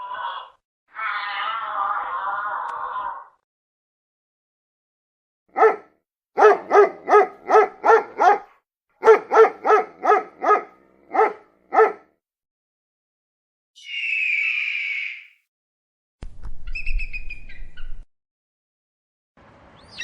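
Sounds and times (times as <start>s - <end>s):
dog barking: 5.5s - 12.2s.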